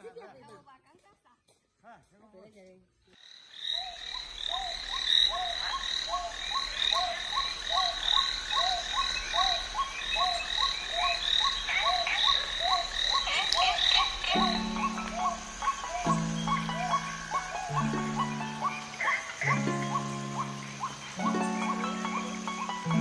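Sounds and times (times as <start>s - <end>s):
frogs calling: 3.1s - 23.0s
high continuous chorus: 3.8s - 23.0s
music: 13.9s - 23.0s.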